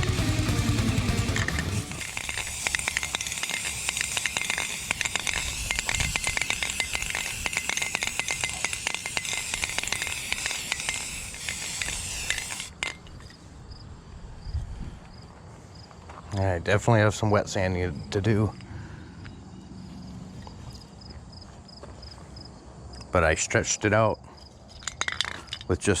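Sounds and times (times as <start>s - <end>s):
aerosol can spraying: 1.2s - 12.8s.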